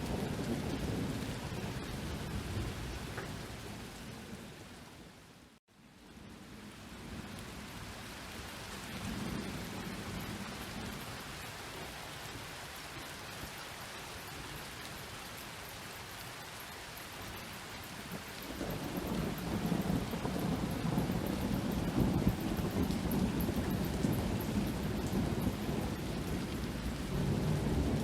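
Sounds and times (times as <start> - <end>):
thunder rumbling: 0.0 - 4.6, 18.1 - 28.0
rain pattering: 0.0 - 28.0.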